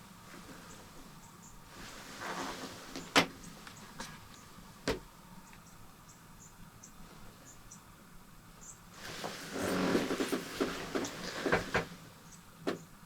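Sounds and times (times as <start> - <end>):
close-up rustling: 9.0 - 12.2.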